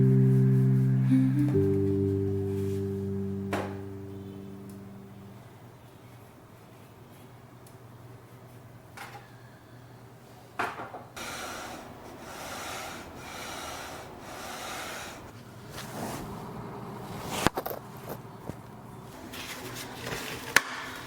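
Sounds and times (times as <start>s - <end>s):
rubbing or scrubbing: 0.0s - 1.0s.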